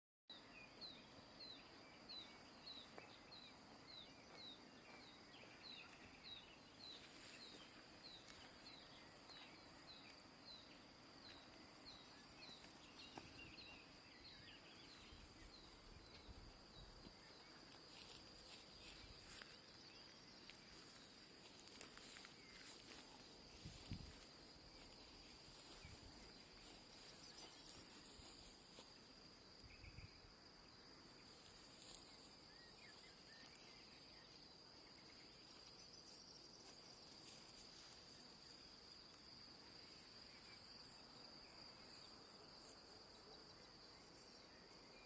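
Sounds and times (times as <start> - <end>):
crickets droning: 0.3 - 45.0.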